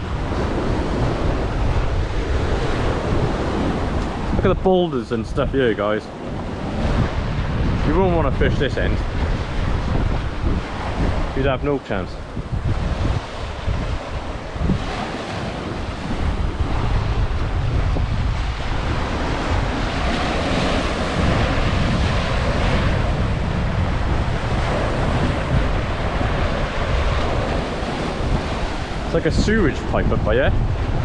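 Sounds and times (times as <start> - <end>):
waves breaking on rocks: 0.0 - 31.0
wind buffeting microphone: 0.0 - 31.0.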